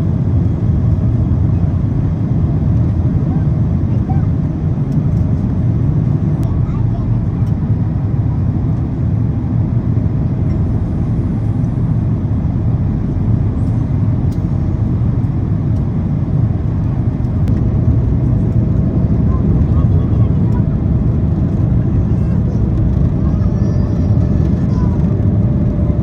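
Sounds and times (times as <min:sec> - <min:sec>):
airplane engine cabin rumble: 0:00.0 - 0:26.0.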